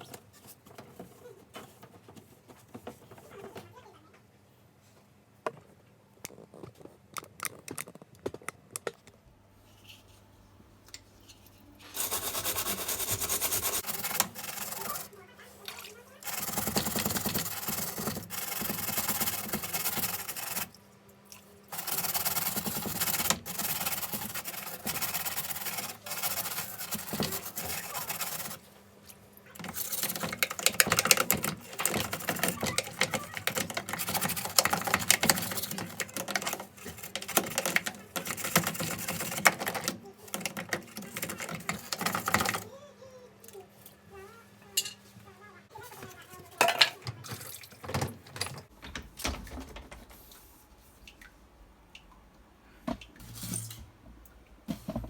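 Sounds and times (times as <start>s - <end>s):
scratchy rubbing or scrubbing: 11.9s - 15.2s, 16.2s - 20.7s, 21.7s - 28.6s, 29.6s - 42.6s.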